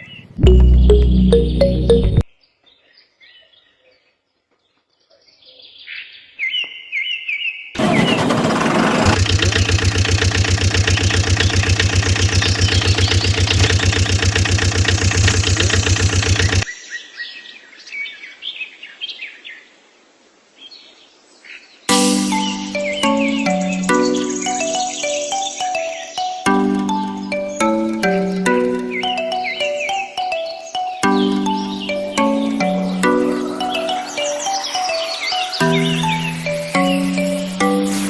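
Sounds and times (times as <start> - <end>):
birds chirping: 0.0 - 17.2, 21.9 - 38.0
loud pulsing mechanical sound: 7.8 - 16.7.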